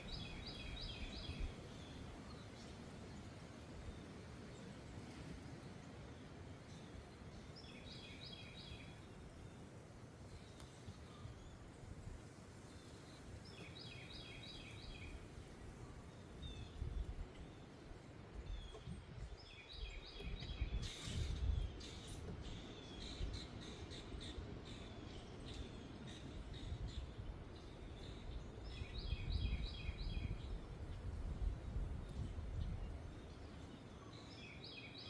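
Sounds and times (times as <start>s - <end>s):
small birds singing: 0.0s - 3.2s, 6.7s - 9.6s, 12.7s - 15.3s, 16.1s - 35.0s
wind buffeting microphone: 13.5s - 17.6s, 18.2s - 23.6s, 26.4s - 33.6s.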